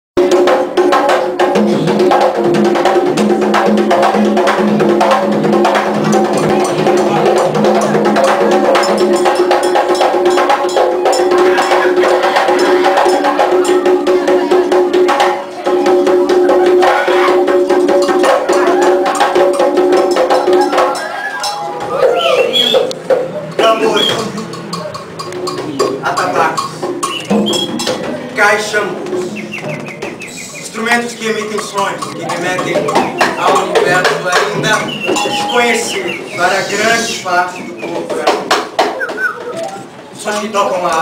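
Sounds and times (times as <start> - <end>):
drums: 0.2 - 41.0
steady held tones: 5.7 - 40.3
wood-block-like clicks: 22.8 - 28.0, 31.1 - 35.6, 38.0 - 39.8.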